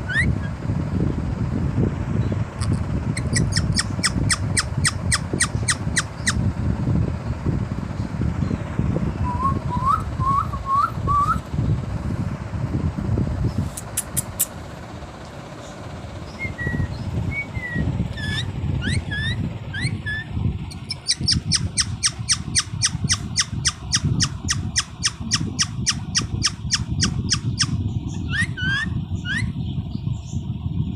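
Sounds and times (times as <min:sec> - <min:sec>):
low rumble: 0:00.0 - 0:30.9
parrot whistled calls: 0:00.1 - 0:00.5, 0:03.2 - 0:06.4, 0:16.3 - 0:29.6
parrot clicking chirps: 0:02.6 - 0:06.4, 0:13.8 - 0:14.5, 0:18.2 - 0:29.4.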